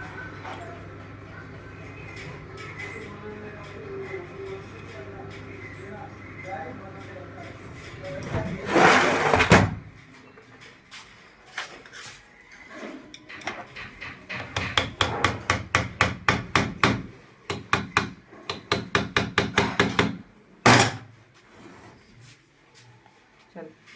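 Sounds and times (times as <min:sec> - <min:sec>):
hammer tapping: 0:13.2 - 0:20.2.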